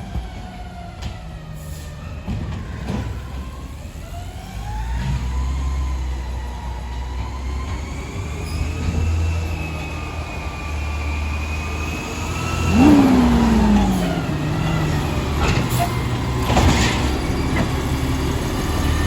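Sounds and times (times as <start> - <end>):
garbage truck engine drone: 0.0 - 19.0
engine surge with falling tone: 11.6 - 15.8.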